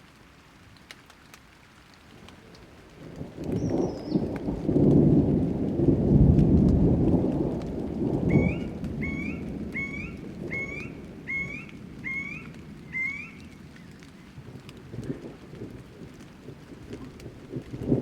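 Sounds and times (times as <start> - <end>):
steady rain: 0.0 - 18.0
thunder rumbling: 2.2 - 18.0
bird rising call: 8.3 - 14.0.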